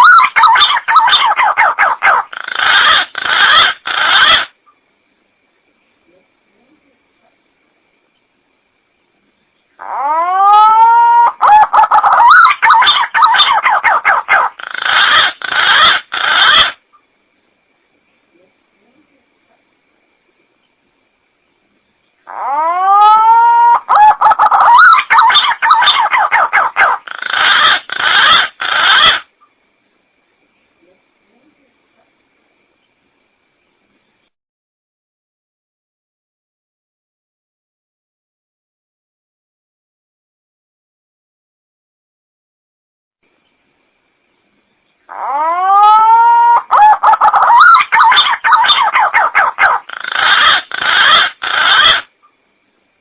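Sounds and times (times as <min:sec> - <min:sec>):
pigeon calling: 0:00.0 - 0:04.6, 0:09.8 - 0:16.8, 0:22.3 - 0:29.3, 0:45.1 - 0:52.1.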